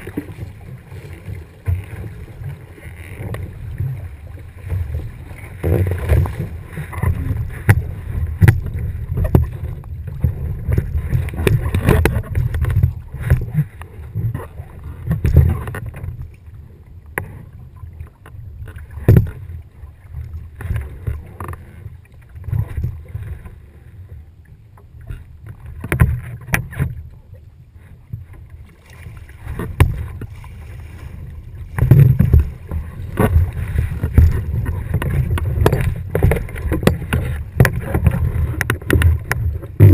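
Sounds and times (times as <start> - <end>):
water noise: 0.0 - 39.9
sharp knocks and clicks: 7.0 - 9.6, 19.0 - 19.4, 29.6 - 30.3, 31.7 - 39.9.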